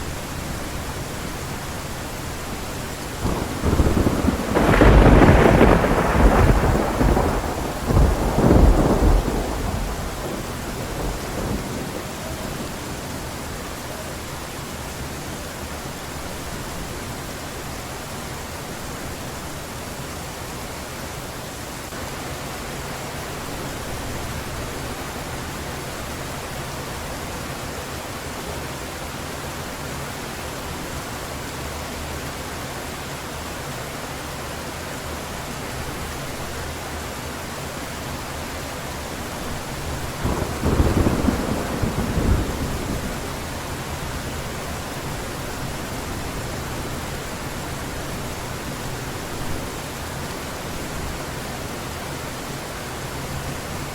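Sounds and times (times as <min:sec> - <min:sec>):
heavy rain: 0:00.0 - 0:53.9
thunder rumble: 0:02.4 - 0:14.0, 0:39.3 - 0:49.8.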